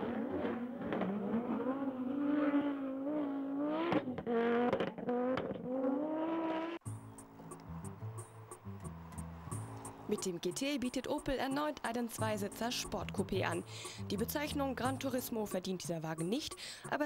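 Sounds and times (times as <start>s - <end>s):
car engine accelerating: 0.0s - 6.8s.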